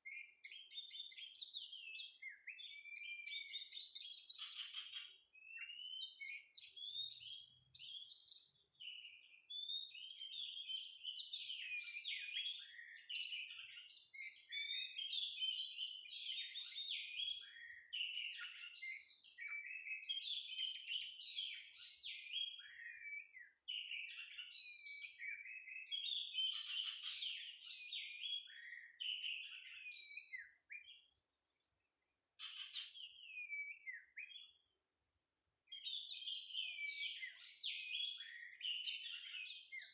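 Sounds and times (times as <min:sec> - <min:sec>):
bird song with whistles and trills: 0:00.0 - 0:31.5, 0:32.3 - 0:39.9.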